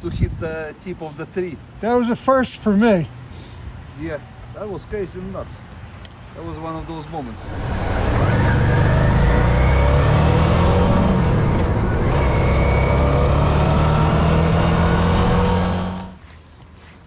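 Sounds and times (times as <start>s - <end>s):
wind rushing: 7.4s - 16.2s.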